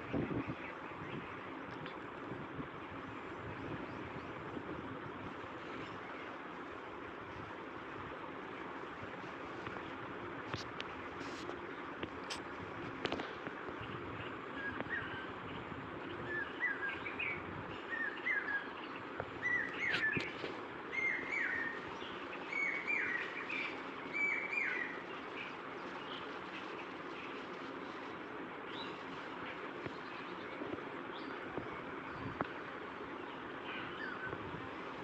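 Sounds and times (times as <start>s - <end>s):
outdoor hiss: 0.0s - 35.0s
bird chirping: 13.8s - 28.0s.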